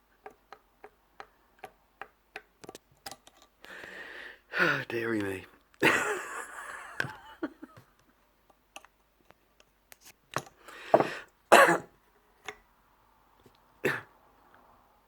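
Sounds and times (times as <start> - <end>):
man coughing: 11.0 - 11.9, 13.9 - 14.1.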